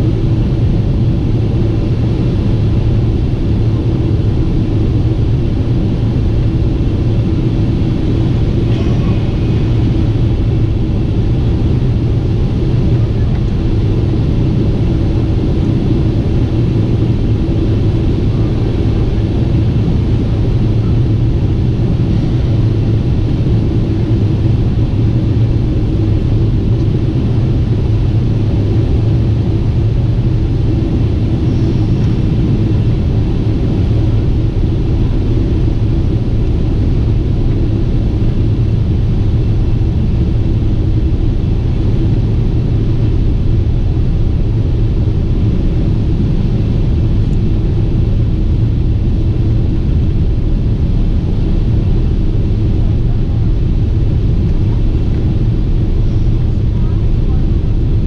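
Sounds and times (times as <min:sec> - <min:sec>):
jet airliner cabin rumble: 0:00.0 - 0:58.0.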